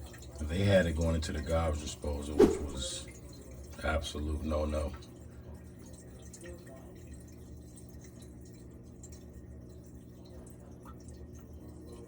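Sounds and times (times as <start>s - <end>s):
low hum: 2.4s - 3.0s
water dripping and trickling: 3.0s - 12.0s.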